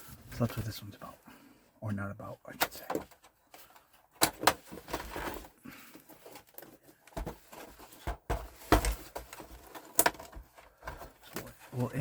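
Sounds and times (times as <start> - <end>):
hardware clicking and knocking: 4.2 - 5.4
heavy thumps: 7.2 - 9.4.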